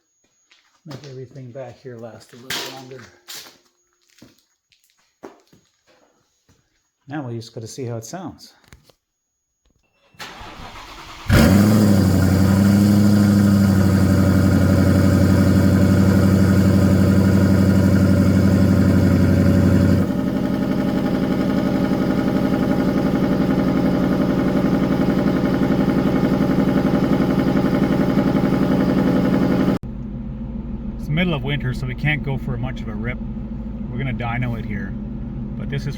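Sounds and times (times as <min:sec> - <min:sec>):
car engine starting and idling: 0:10.2 - 0:35.9.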